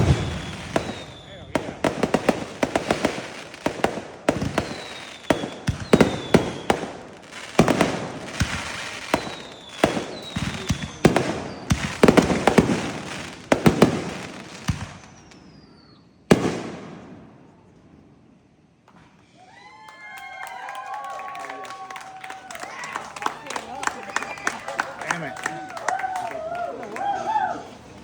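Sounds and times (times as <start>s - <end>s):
falling firework whistles: 0.0s - 17.2s
fireworks bangs and crackle: 0.0s - 18.0s.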